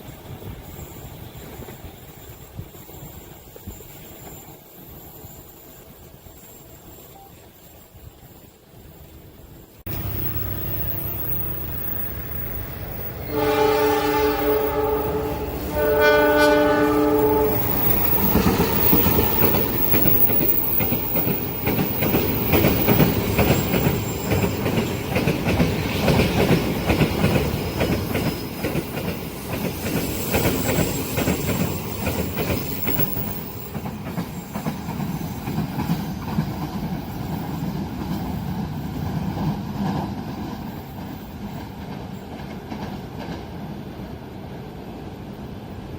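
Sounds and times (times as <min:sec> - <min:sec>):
train rumbling past: 0:00.0 - 0:45.9
wheels clacking over rail joints: 0:09.8 - 0:43.6
train horn blasts: 0:13.2 - 0:19.6.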